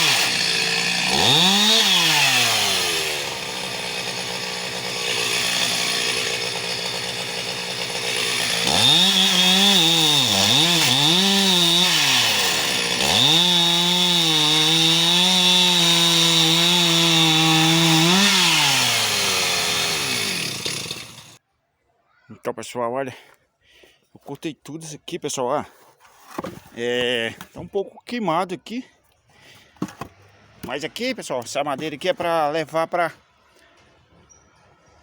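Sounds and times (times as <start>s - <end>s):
chainsaw cutting logs: 0.0s - 21.4s, 29.4s - 32.8s.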